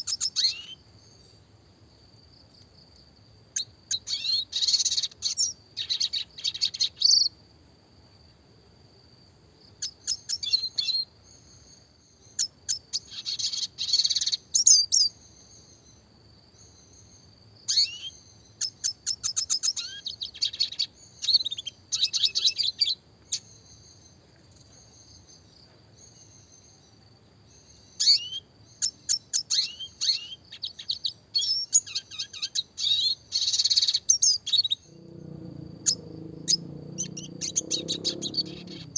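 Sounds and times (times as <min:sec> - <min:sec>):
bird twittering and trilling: 0:00.0 - 0:01.2, 0:27.5 - 0:38.9.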